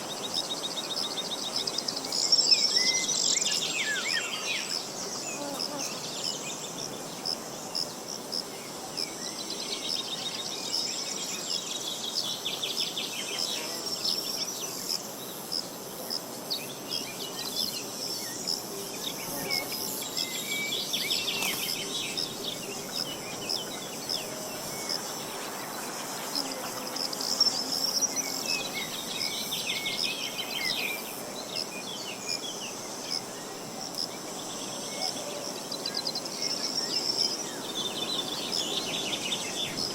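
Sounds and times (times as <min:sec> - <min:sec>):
high-pitched insect buzz: 0:12.2 - 0:34.6.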